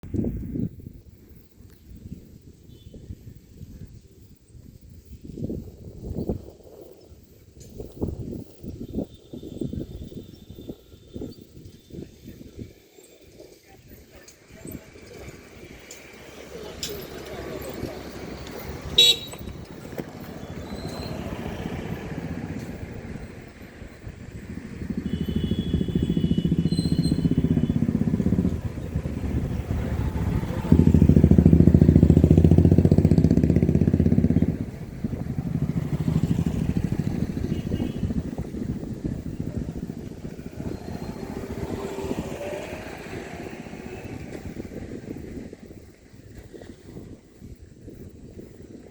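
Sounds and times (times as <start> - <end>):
passing motor traffic: 9.6 - 48.7
car horn: 18.8 - 19.6, 25.0 - 28.1, 37.2 - 38.3.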